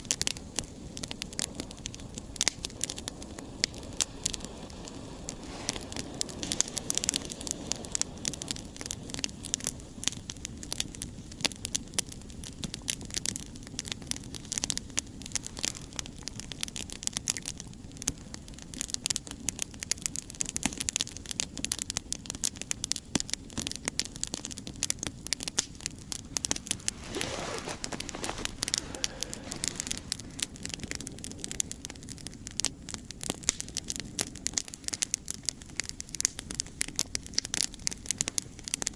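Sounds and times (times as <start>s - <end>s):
campfire crackling and popping: 0.0s - 38.9s
steady hiss: 3.1s - 10.0s, 25.7s - 31.7s.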